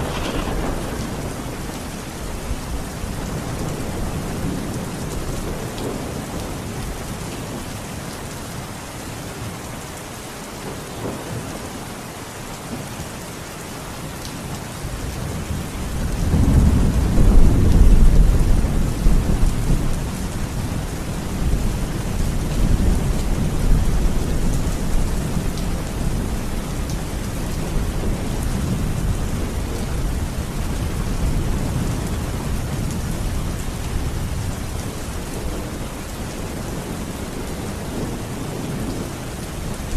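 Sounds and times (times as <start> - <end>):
thunder rolling: 0.0 - 4.8, 15.5 - 26.4
steady rain falling: 0.0 - 39.9.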